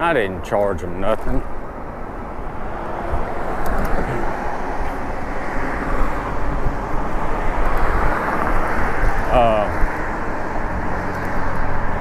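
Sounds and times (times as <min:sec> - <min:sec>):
wind on microphone: 0:01.4 - 0:12.0.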